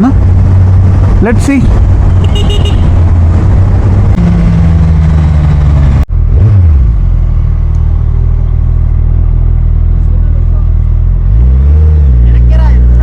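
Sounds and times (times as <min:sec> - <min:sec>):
wind noise: 0:00.0 - 0:06.6.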